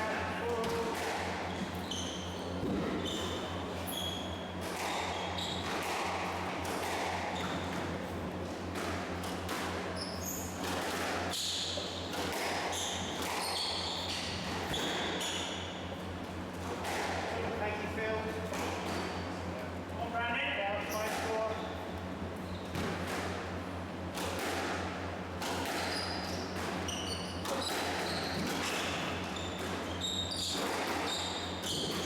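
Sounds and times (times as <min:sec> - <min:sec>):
steady low hum: 0:00.0 - 0:32.0
shoes squeaking on court floor: 0:00.5 - 0:06.1, 0:06.8 - 0:07.9, 0:09.4 - 0:16.1, 0:20.8 - 0:21.8, 0:22.4 - 0:23.0, 0:25.5 - 0:32.0
squash ball smacking: 0:04.6 - 0:07.6.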